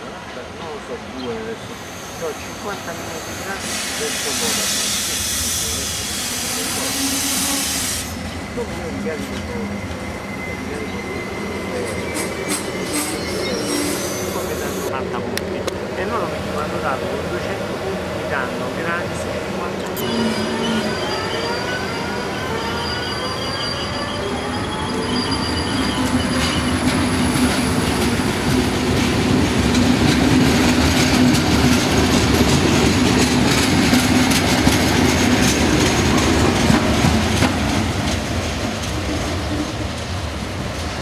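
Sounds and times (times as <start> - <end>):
high-pitched wheel squeal: 9.5 - 14.9, 20.0 - 27.8
train wheels clacking over rail joints: 26.4 - 40.2.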